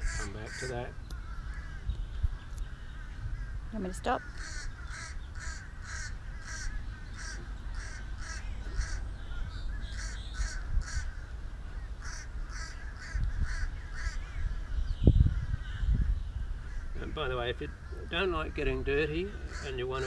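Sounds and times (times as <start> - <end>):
bird calling in short calls: 17.7 - 20.0.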